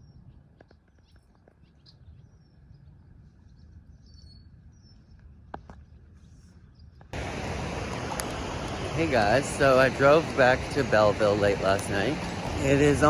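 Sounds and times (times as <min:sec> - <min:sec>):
low steady rumble: 0:07.2 - 0:13.0.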